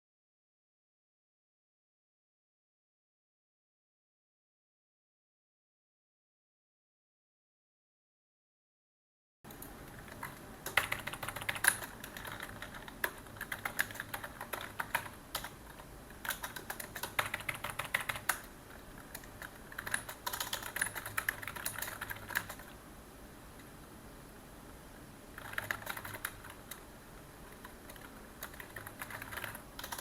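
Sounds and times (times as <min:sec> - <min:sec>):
computer keyboard typing: 0:09.5 - 0:22.8, 0:25.3 - 0:26.9, 0:27.5 - 0:30.0.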